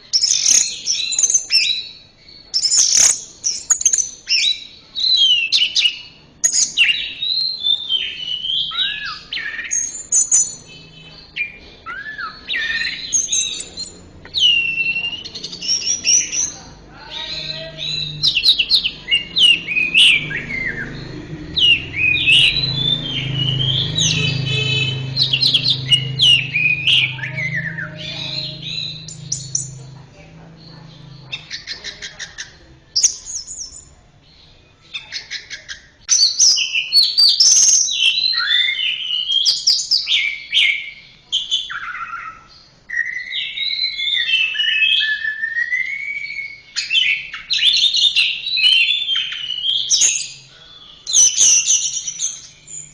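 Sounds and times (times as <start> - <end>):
thrush singing whistled phrases: 0.2 - 29.8, 36.1 - 52.9.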